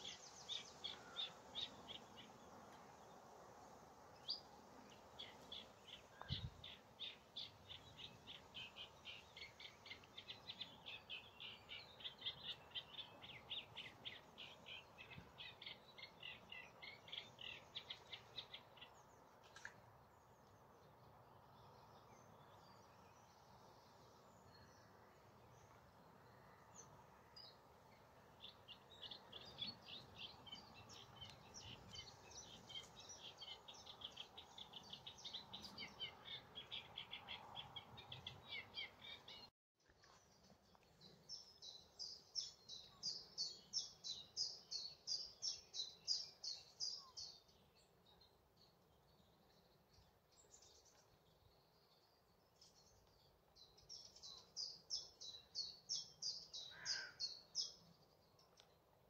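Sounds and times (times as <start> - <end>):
songbird trilling: 55.4 - 57.7.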